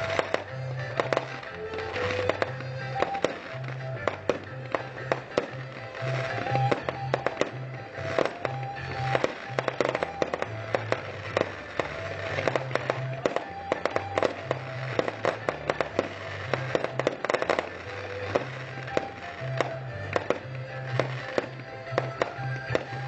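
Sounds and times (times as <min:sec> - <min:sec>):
fireworks bursting and crackling: 0:00.0 - 0:23.0
music with bass line: 0:00.0 - 0:23.0.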